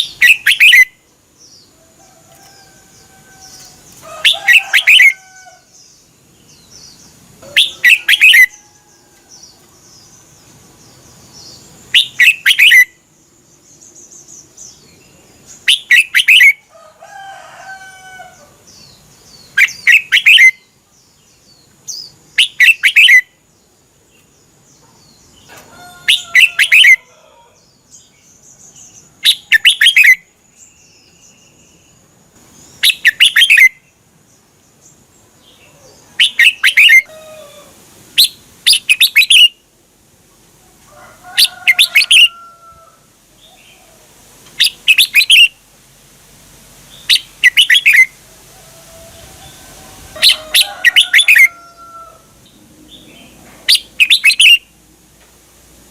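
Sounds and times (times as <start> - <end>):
bird singing loud phrases: 0.0 - 1.8, 2.4 - 16.7, 18.0 - 37.6, 38.2 - 39.7, 41.4 - 42.4, 44.6 - 45.6, 46.9 - 48.2, 49.1 - 54.7.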